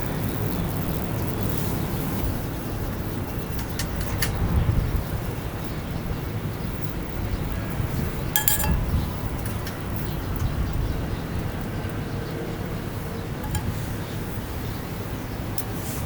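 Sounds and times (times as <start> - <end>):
metal clinks: 8.2 - 10.8, 13.4 - 13.9.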